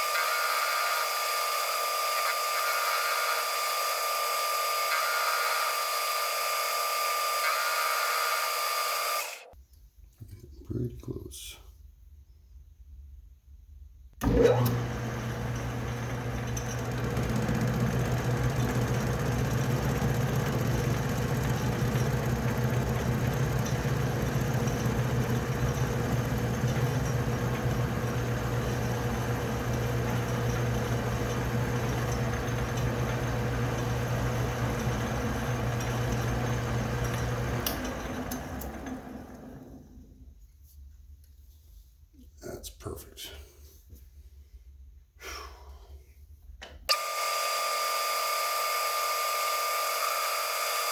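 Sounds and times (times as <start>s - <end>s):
metal lathe running with a hum: 0.0s - 9.4s, 14.2s - 39.7s, 46.9s - 50.9s.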